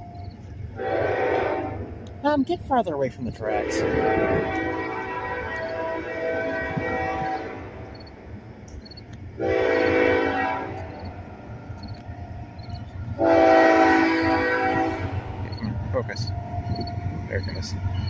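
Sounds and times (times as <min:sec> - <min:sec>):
low rumble of train: 0:00.0 - 0:18.0
locomotive air horn blasts: 0:00.8 - 0:01.9, 0:03.5 - 0:07.9, 0:09.4 - 0:11.1, 0:13.2 - 0:15.4.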